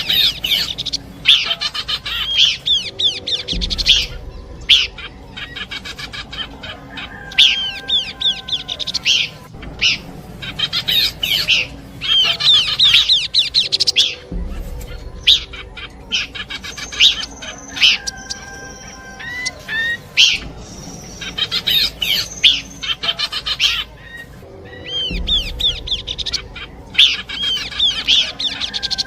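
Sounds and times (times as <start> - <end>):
bird whistled notes and trills: 0.0 - 29.0.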